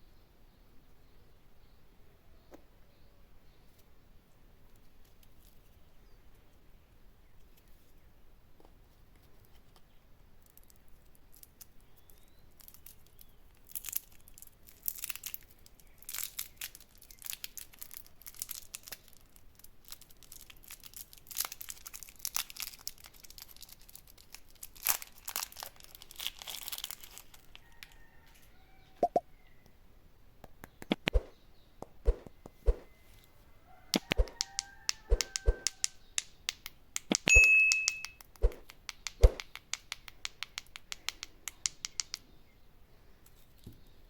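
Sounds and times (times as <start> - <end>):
candy wrapper crinkling: 10.4 - 27.7.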